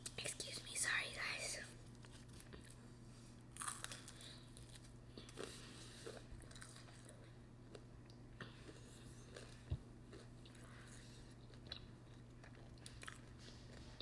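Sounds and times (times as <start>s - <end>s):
steady low hum: 0.0s - 14.0s
chewing and smacking mouth sounds: 3.5s - 14.0s.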